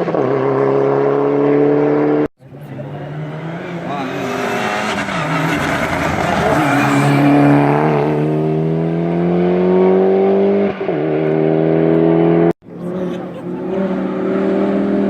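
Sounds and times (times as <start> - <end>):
race car engine at full throttle: 0.0 - 15.0.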